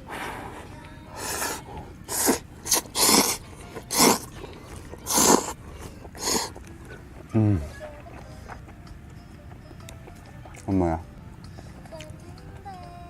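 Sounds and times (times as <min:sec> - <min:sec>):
person making breathy sounds: 0:00.0 - 0:06.6.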